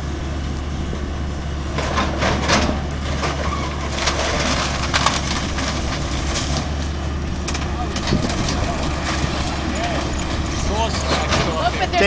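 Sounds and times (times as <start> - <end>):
timber cracking and splintering: 2.2 - 10.0.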